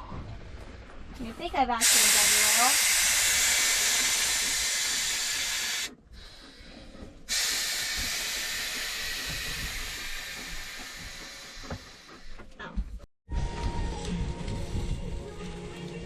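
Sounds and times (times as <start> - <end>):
steady hiss: 1.2 - 5.9, 7.3 - 12.4.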